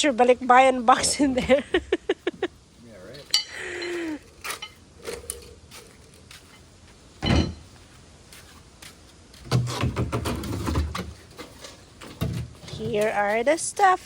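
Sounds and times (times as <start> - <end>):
heavy thump: 7.2 - 7.7.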